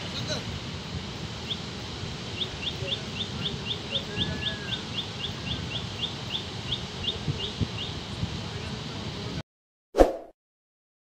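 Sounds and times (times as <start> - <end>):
river water rushing: 0.0 - 7.2
wind: 0.0 - 9.4
bird chirping: 2.4 - 8.0.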